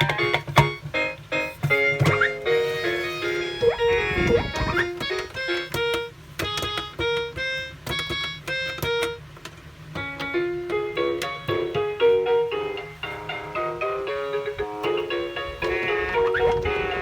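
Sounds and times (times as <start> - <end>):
electronic piano melody: 0.0 - 17.0
low thumps: 3.6 - 5.1.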